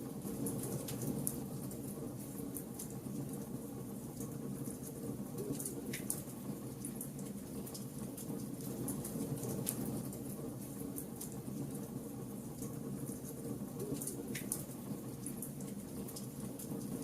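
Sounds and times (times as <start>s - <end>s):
burning wood crackling and popping: 4.1s - 11.8s.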